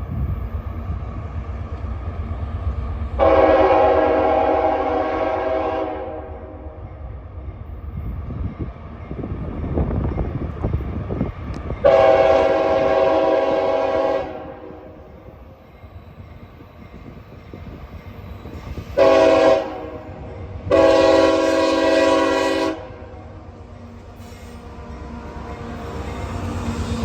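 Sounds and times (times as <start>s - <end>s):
train rumble: 0.0s - 27.0s
locomotive air horn blasts: 3.2s - 6.7s, 11.8s - 15.0s, 19.0s - 23.2s.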